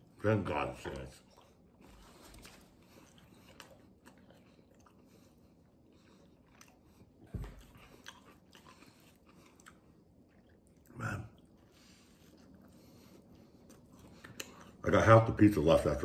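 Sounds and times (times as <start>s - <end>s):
man chewing food: 0.0s - 14.8s.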